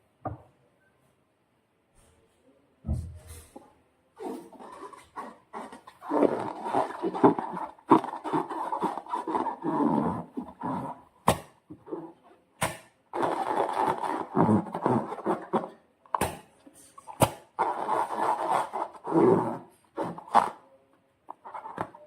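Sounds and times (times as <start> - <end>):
slime squelching by hand: 4.2 - 20.6.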